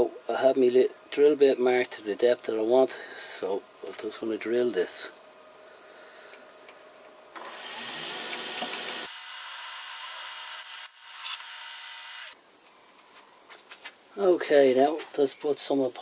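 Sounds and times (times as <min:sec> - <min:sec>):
drill boring into wood: 0:07.3 - 0:12.4.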